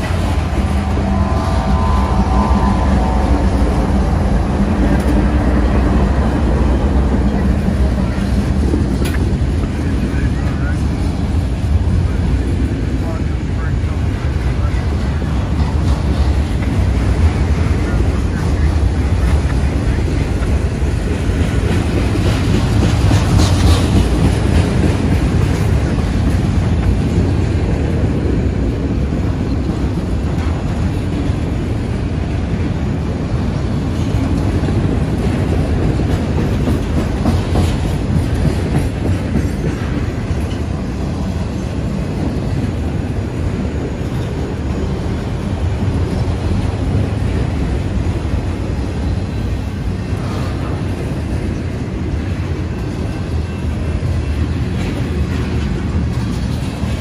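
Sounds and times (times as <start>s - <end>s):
freight train rolling by: 0.0s - 57.0s
wheels on rails: 14.1s - 57.0s.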